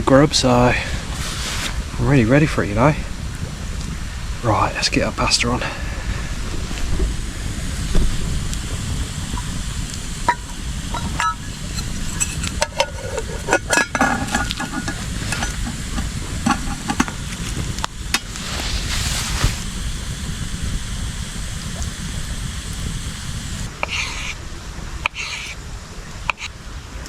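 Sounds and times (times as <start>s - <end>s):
hissing: 5.6s - 24.1s
metal cookware clinking and scraping: 10.3s - 17.2s.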